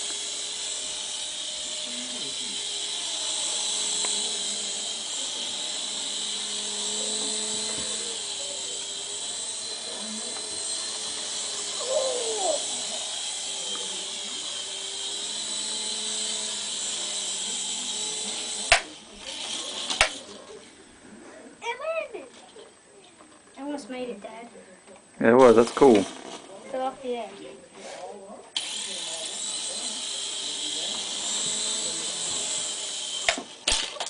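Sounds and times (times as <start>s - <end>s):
toy helicopter crashing knocks: 0.0s - 20.4s, 25.4s - 26.5s, 28.6s - 34.0s
toy helicopter motor whining: 0.0s - 20.6s, 28.0s - 34.0s.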